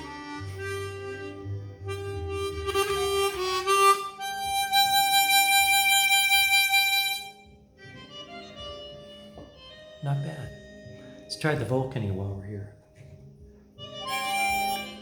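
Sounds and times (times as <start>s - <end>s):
harmonica playing melody: 0.0s - 12.6s, 13.8s - 15.0s.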